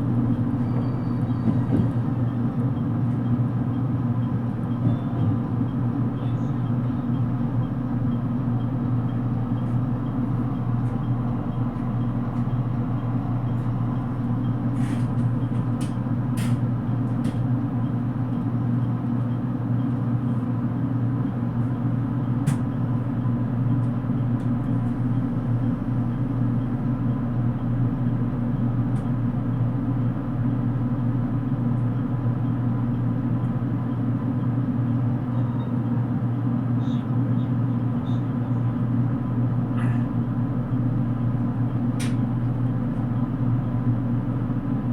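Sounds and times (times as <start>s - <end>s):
train car low hum: 0.0s - 44.9s.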